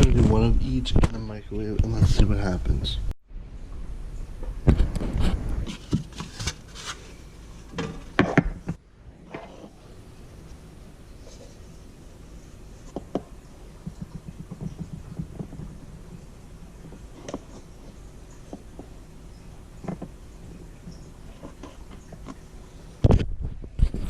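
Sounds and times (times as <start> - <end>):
rustling: 4.7 - 19.0
light clicks and knocks: 12.9 - 16.2.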